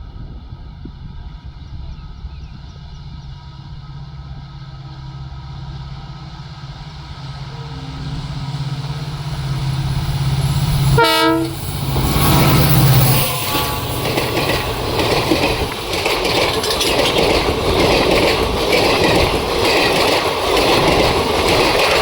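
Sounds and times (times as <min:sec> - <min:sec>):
train rumbling: 0:00.0 - 0:22.0
train horn blast: 0:06.6 - 0:14.5.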